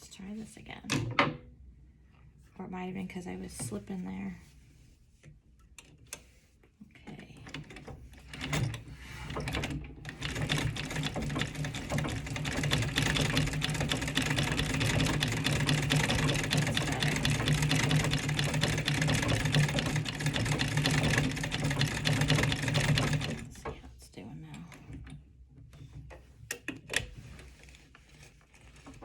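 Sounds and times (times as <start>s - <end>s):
treadle sewing machine stitching: 7.5s - 23.8s.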